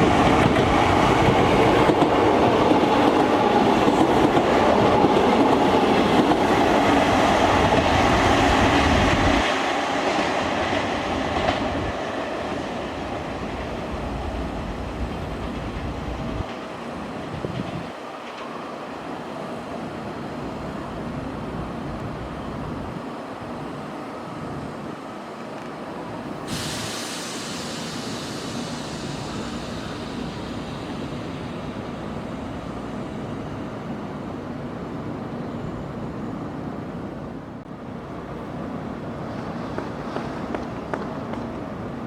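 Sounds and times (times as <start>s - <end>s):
electric train rumbling: 0.0s - 42.0s
sudden hiss: 26.4s - 32.1s.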